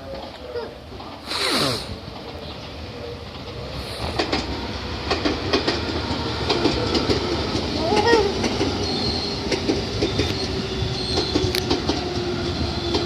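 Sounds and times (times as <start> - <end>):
person sneezing: 1.2 - 2.0
train wheels clacking and squealing: 2.1 - 13.0.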